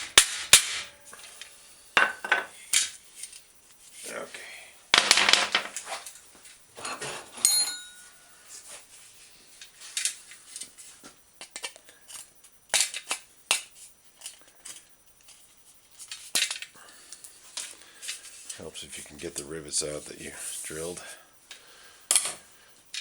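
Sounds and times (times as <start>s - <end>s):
short metallic ring: 7.4s - 8.2s.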